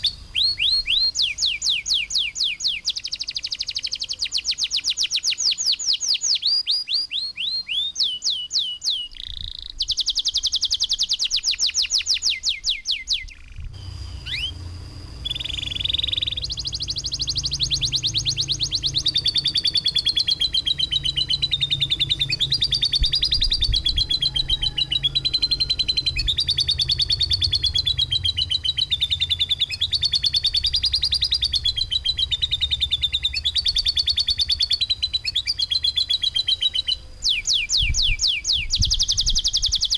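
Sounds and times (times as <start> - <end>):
bird chirps and buzzy trills: 0.0 - 39.9
bird rapid wavering trill: 0.0 - 39.9
low steady hum: 13.3 - 38.2.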